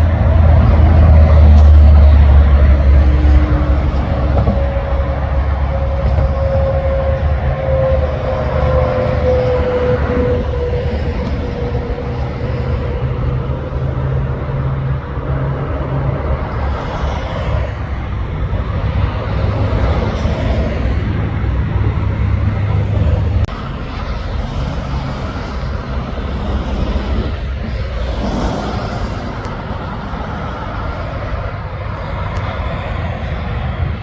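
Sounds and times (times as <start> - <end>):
truck diesel engines droning: 0.0 - 34.0
held truck horn: 0.2 - 13.3.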